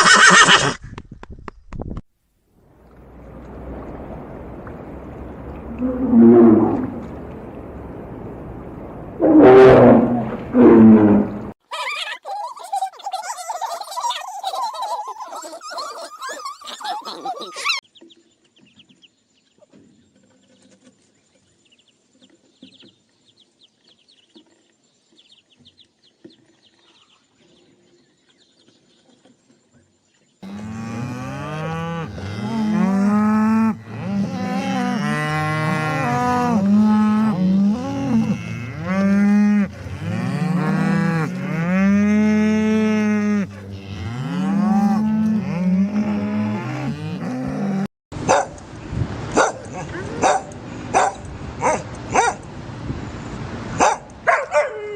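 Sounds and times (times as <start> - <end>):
cattle mooing: 5.6 - 7.1, 30.4 - 47.9.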